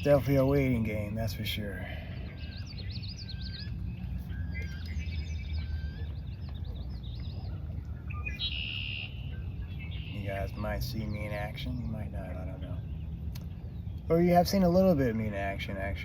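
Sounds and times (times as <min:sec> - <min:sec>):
birds chirping: 0:00.0 - 0:16.0
steady low rumble: 0:00.0 - 0:16.0
buzzy bird trill: 0:02.3 - 0:13.0.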